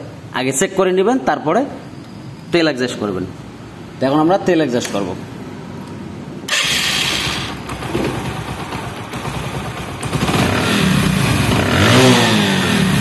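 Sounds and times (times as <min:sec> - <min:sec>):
motorcycle engine running: 0:06.5 - 0:13.0.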